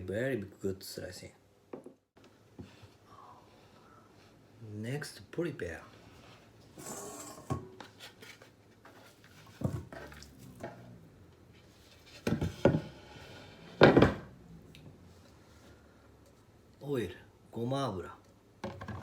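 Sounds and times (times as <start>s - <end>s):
dishes and utensils clinking: 6.8s - 7.8s.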